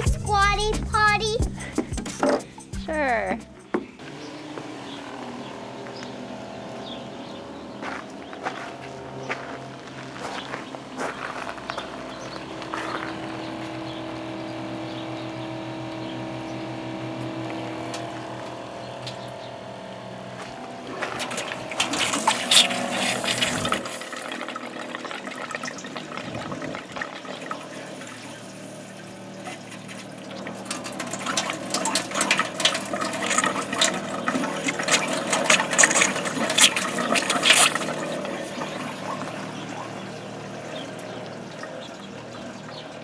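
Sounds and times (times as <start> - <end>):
water running into a sink: 20.8 - 42.8
clattering: 20.9 - 24.4, 27.3 - 39.4.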